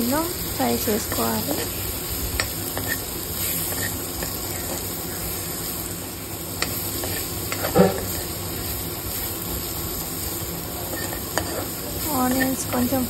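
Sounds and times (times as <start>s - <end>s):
vegetables sizzling in hot oil: 0.0s - 13.0s
spoon knocking pan: 6.6s - 8.2s, 10.9s - 11.7s.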